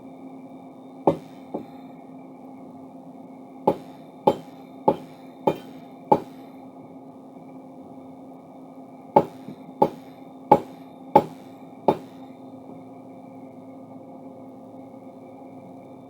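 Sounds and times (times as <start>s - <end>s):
steady hum: 0.0s - 16.0s
hammer striking steel: 1.1s - 1.7s, 3.7s - 6.5s, 9.2s - 12.2s.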